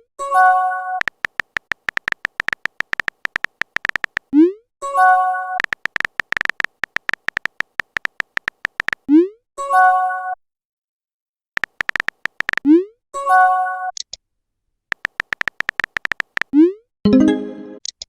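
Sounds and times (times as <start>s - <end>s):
phone keyboard tapping clicks: 1.0s - 4.3s, 5.6s - 9.1s, 11.6s - 12.7s, 14.9s - 16.6s
message alert chime: 17.1s - 17.8s.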